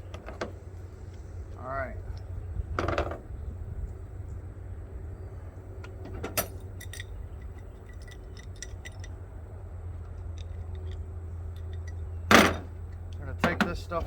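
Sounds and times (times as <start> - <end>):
metal fittings clinking: 6.2 - 9.2.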